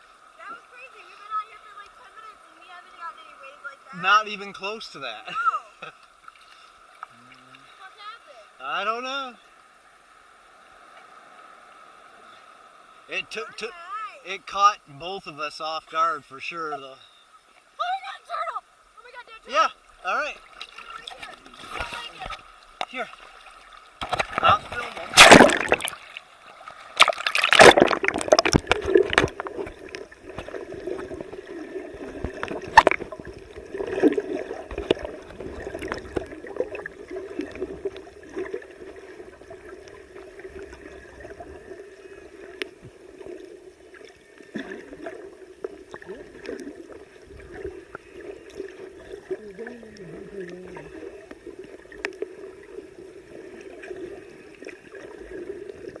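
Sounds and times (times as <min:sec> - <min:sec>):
sea water sloshing and gurgling: 0:19.8 - 0:56.0
loud water splashes: 0:22.9 - 0:26.2, 0:26.8 - 0:39.0.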